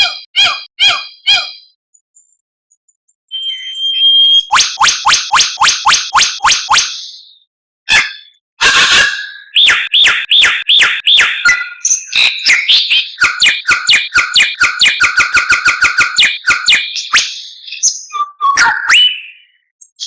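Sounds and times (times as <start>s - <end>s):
bird singing whistled notes: 3.3s - 8.4s, 9.1s - 20.0s.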